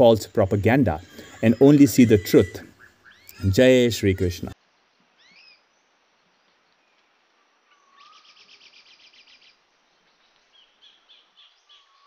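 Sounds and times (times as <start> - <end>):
bird chirps: 0.0 - 4.5, 5.2 - 5.9, 7.7 - 12.0
bird trilling: 0.0 - 4.6.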